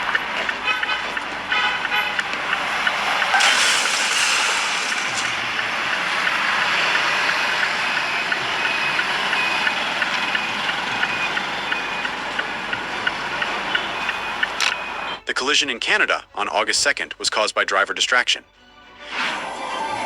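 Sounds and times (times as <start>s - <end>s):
vehicle and road noise: 0.0s - 20.0s.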